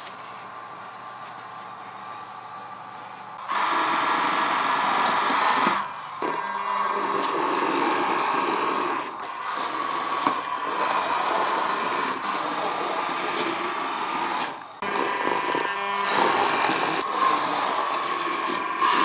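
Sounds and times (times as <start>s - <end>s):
small motor whirring: 0.0s - 19.0s.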